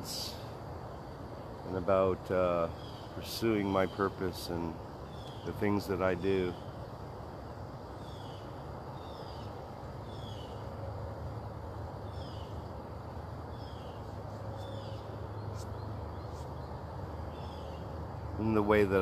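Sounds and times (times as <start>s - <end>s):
steady low hum: 0.0s - 19.0s
bird calling: 2.5s - 6.9s, 7.9s - 10.8s, 12.0s - 12.7s, 13.5s - 19.0s.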